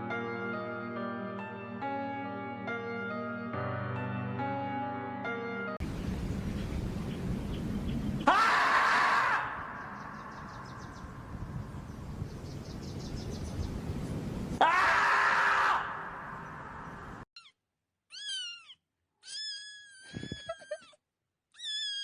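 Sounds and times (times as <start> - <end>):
steady noisy hiss: 5.8 - 8.2
loud wailing cry: 8.2 - 9.7, 14.6 - 16.1
cat meowing: 18.1 - 20.7.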